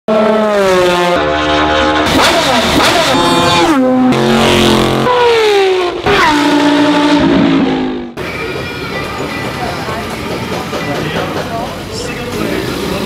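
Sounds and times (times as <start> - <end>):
racecar engine revving: 0.1 - 8.2.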